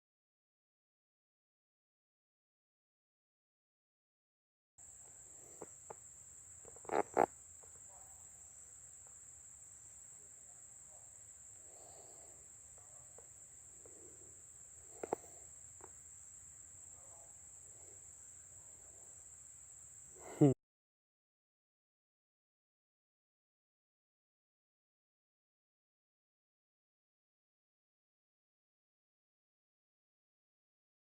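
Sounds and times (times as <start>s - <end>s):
insect chorus: 4.8s - 20.6s.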